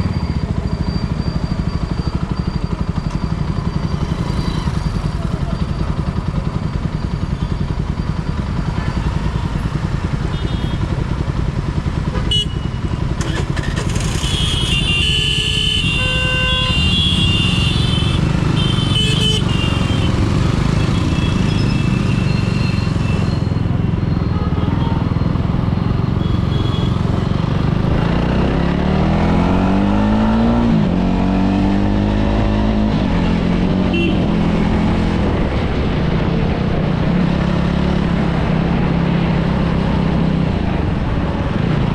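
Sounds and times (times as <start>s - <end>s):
motorcycle engine running: 0.0s - 41.9s
street traffic: 0.0s - 41.9s
vehicle horn: 12.1s - 20.2s, 26.2s - 27.0s, 33.9s - 34.3s.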